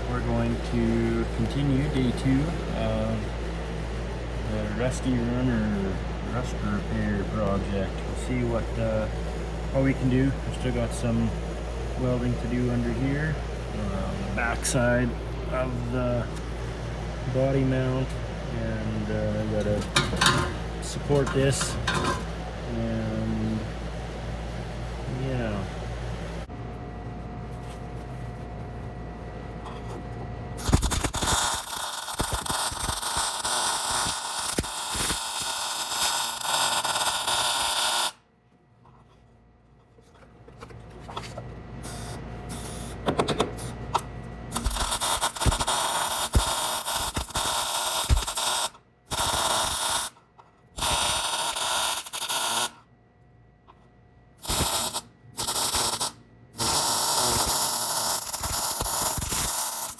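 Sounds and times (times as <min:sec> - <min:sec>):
steady hum: 0:00.0 - 0:59.9
welder crackling: 0:17.4 - 0:22.4, 0:30.6 - 0:38.2, 0:44.5 - 0:50.2, 0:50.8 - 0:52.8, 0:54.4 - 0:59.9.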